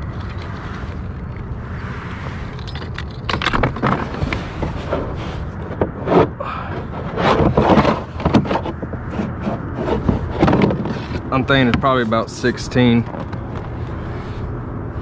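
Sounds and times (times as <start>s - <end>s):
steady low rumble: 0.0s - 15.0s
fish scraping and knocking on kayak: 3.6s - 11.9s.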